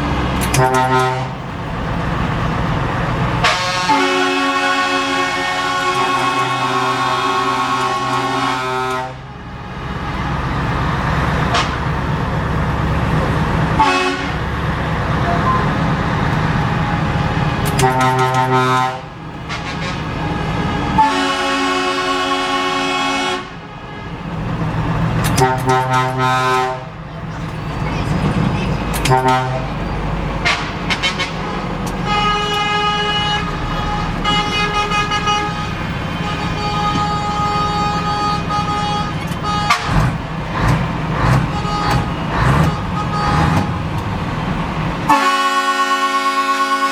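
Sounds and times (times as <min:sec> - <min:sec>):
diesel truck engine pulling: 0:00.0 - 0:46.9
truck air horn: 0:00.4 - 0:01.4, 0:03.4 - 0:10.5, 0:11.4 - 0:12.0, 0:13.8 - 0:14.5, 0:17.6 - 0:24.4, 0:25.2 - 0:27.0, 0:29.0 - 0:29.8, 0:30.4 - 0:40.2, 0:41.3 - 0:43.8, 0:45.1 - 0:46.9.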